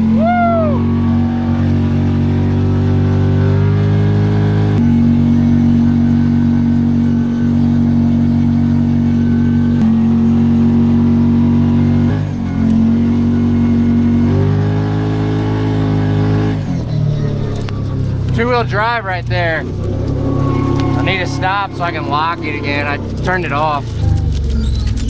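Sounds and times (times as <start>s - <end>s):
vehicle engine droning: 0.0s - 25.0s.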